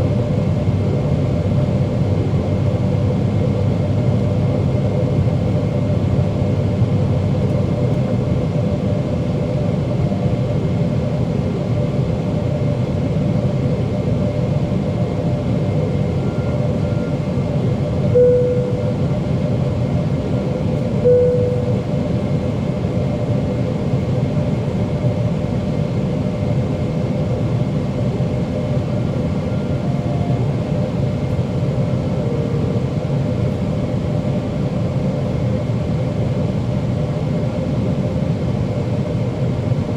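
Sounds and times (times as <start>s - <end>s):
airplane cabin roar: 0.0s - 39.9s
jet engines humming: 0.0s - 39.9s
short tone: 16.1s - 17.4s, 18.1s - 19.3s, 21.0s - 22.1s, 28.9s - 33.6s.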